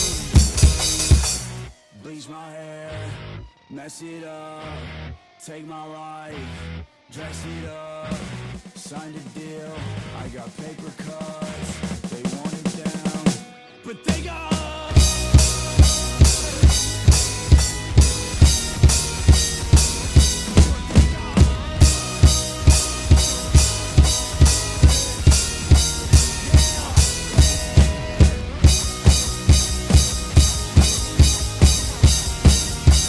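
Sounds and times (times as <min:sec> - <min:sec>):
drum kit fast beat: 0:00.0 - 0:01.7, 0:10.4 - 0:13.4, 0:14.1 - 0:33.0
held guitar chords: 0:00.0 - 0:33.0
cymbals: 0:15.0 - 0:33.0.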